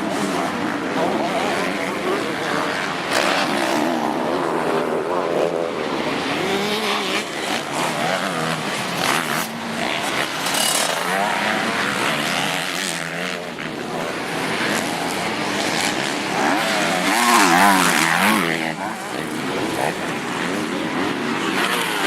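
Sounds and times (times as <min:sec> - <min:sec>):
motocross bike engines revving: 0:00.0 - 0:22.0.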